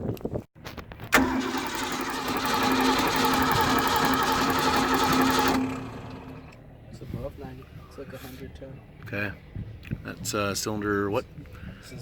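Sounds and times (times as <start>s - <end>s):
starter motor cranking engine: 1.1s - 6.6s
boat engine running: 1.2s - 6.6s.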